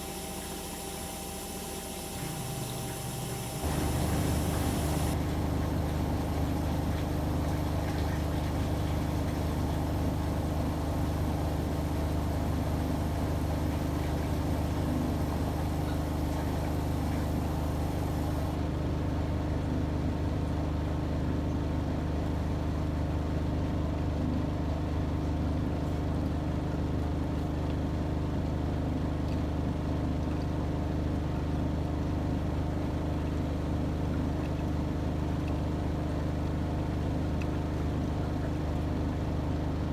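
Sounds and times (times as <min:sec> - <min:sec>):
washing machine motor hum: 0:00.0 - 0:18.6.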